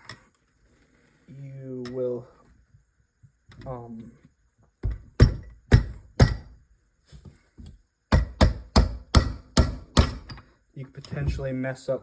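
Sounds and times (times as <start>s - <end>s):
sharp metallic knocks: 4.8s - 6.5s, 8.1s - 10.4s.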